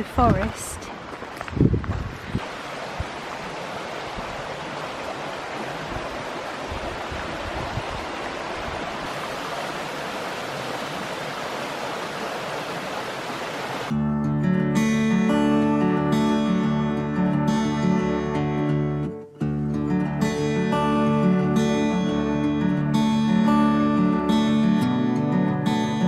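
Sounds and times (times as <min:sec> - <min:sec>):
stream water rushing over rocks: 0:02.3 - 0:13.9.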